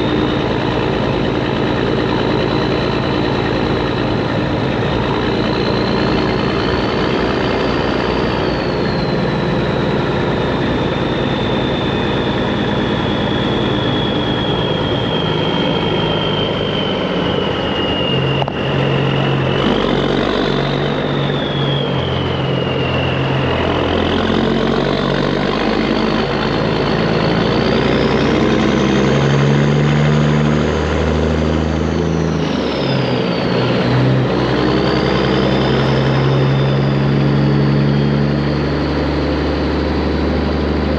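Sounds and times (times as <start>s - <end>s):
high whistle: 0.0s - 40.9s
truck engine running loud: 0.0s - 40.9s.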